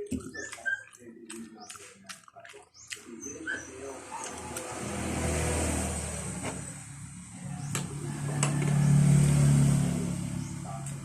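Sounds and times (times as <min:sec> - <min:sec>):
vehicle engine passing by: 0:03.3 - 0:11.0.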